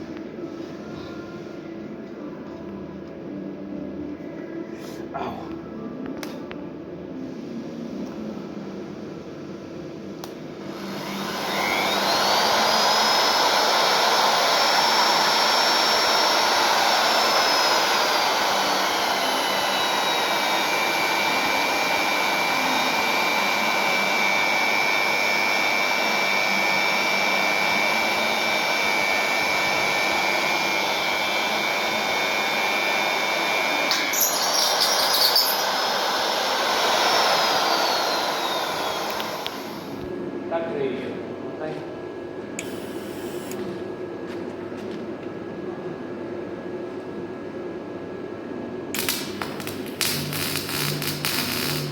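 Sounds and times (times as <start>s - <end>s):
drill motor whining: 10.7s - 40.0s, 42.6s - 43.6s, 49.0s - 51.9s.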